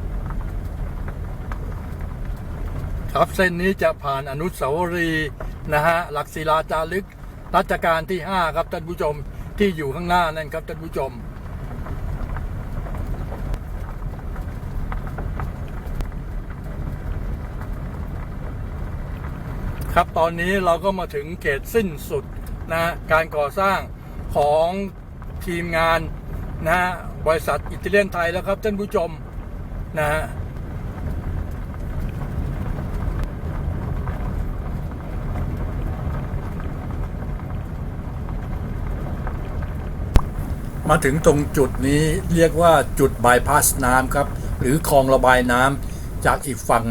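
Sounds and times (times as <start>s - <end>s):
vehicle rumbling on the move: 0.0s - 6.1s, 40.2s - 46.9s
road and wind noise: 0.0s - 46.9s
faint ticks: 40.2s - 46.9s
light clicks: 40.2s - 46.9s.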